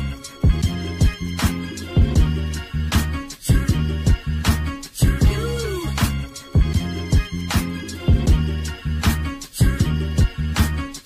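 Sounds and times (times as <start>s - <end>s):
bass line: 0.0s - 11.0s
funk instrumental music: 0.0s - 11.0s
kick and snare drums: 3.5s - 8.4s.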